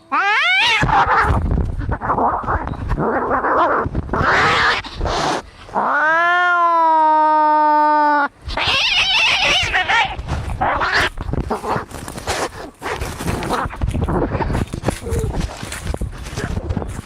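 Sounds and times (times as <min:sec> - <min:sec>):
cats screeching and yowling: 0:00.0 - 0:12.2.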